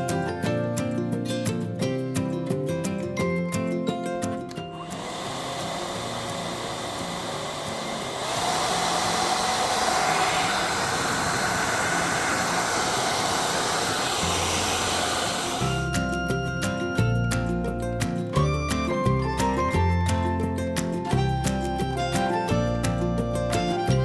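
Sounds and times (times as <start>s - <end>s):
hair dryer running: 4.8s - 17.2s.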